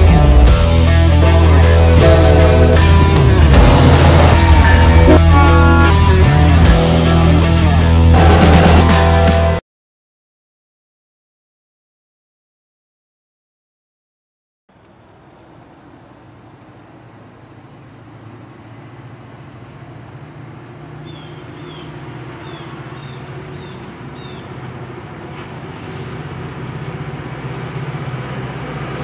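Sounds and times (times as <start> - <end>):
train engine rumble and hum: 0.0 - 9.5, 14.7 - 29.0
birds chirping: 14.7 - 26.2.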